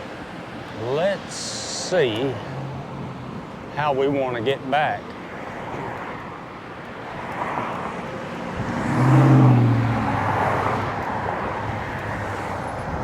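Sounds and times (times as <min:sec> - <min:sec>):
traffic noise: 0:00.0 - 0:13.0
vehicle passing by: 0:00.8 - 0:03.4, 0:07.4 - 0:13.0.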